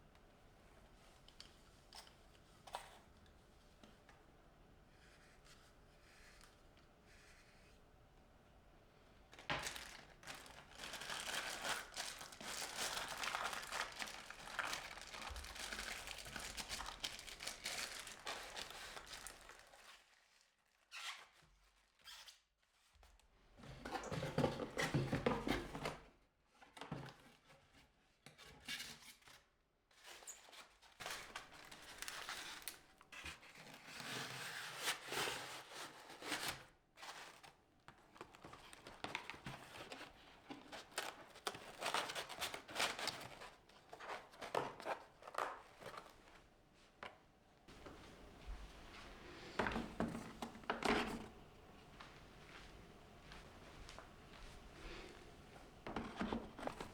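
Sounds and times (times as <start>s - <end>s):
rustling and crinkling materials: 9.2s - 22.1s, 28.6s - 56.9s.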